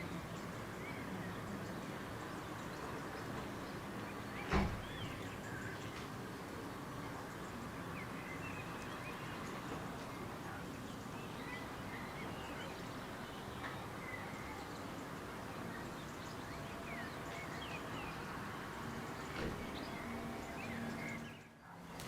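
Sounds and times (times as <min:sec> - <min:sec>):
outdoor hiss and rumble: 0:00.0 - 0:22.0.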